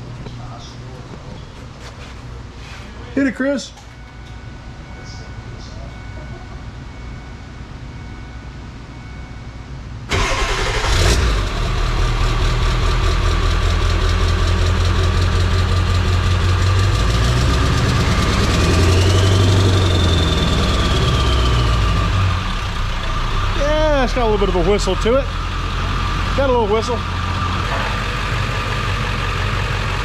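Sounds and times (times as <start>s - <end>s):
diesel truck engine idling: 10.1s - 30.0s.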